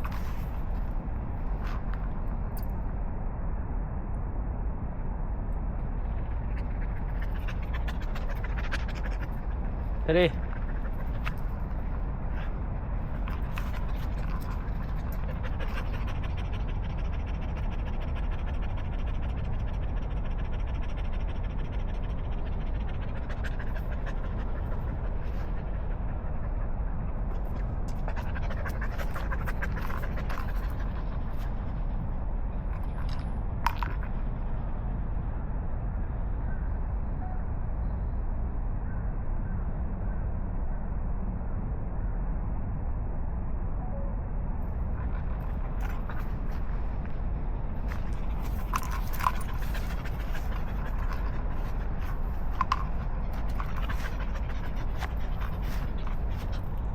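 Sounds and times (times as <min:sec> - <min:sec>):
low background rumble: 0:00.0 - 0:56.9
dog panting rapidly: 0:06.2 - 0:31.9, 0:47.8 - 0:56.9.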